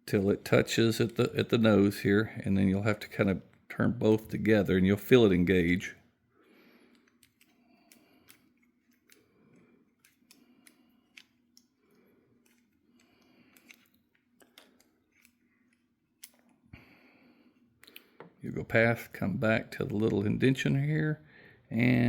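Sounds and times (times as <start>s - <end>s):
faint metallic clicks and ticks: 6.6s - 16.6s.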